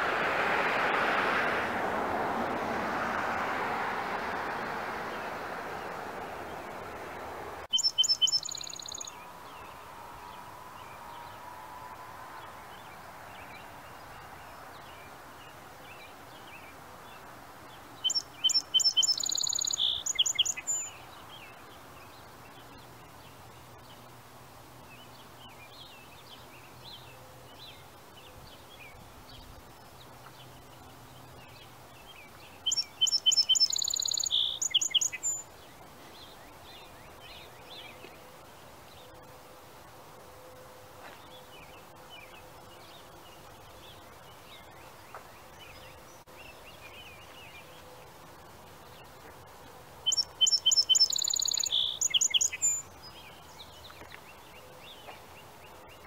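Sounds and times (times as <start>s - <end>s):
songbird singing a falling trill: 7.6s - 24.2s, 24.8s - 39.4s, 40.3s - 56.0s.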